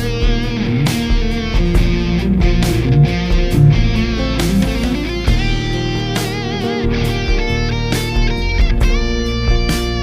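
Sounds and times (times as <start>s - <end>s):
electric guitar lead line: 0.0s - 10.0s.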